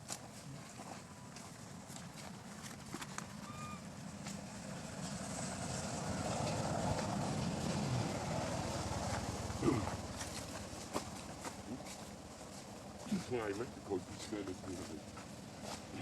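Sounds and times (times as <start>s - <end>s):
motor vehicle passing: 3.3s - 16.0s.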